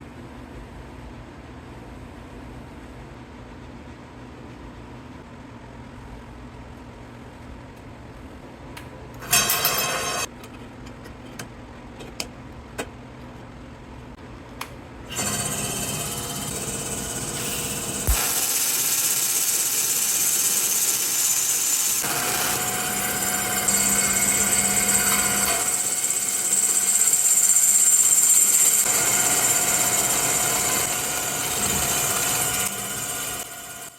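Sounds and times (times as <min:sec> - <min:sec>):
wood lathe running: 0:15.1 - 0:33.9
welding arc hissing and buzzing: 0:16.0 - 0:33.9.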